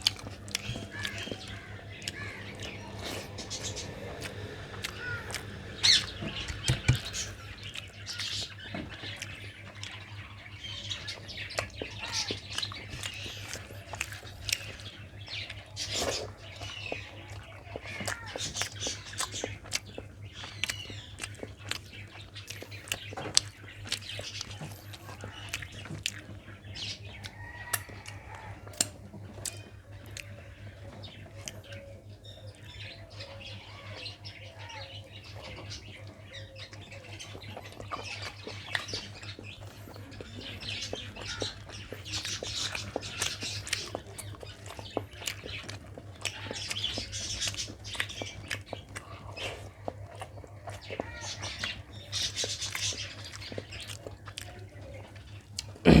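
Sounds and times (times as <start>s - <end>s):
steady low hum: 0.0s - 10.4s
wet chewing smacks: 0.0s - 33.2s, 35.3s - 56.0s
birds chirping and squawking: 0.0s - 56.0s.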